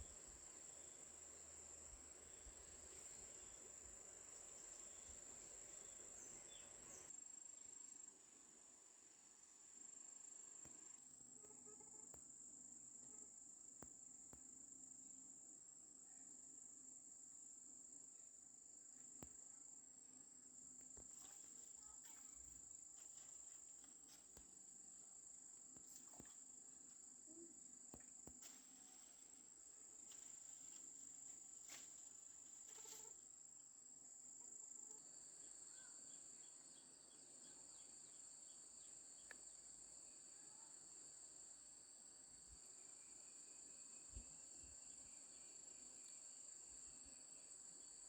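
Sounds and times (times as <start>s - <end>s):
lower insect trill: 0.0s - 8.1s, 9.8s - 48.0s
high-pitched insect trilling: 31.6s - 33.2s.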